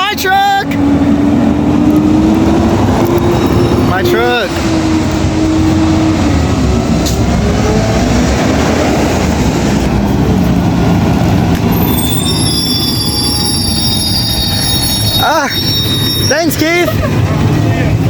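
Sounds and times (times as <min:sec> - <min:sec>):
garbage truck rumbling: 0:00.0 - 0:18.0
high steady squeal: 0:03.0 - 0:05.7, 0:11.6 - 0:16.9.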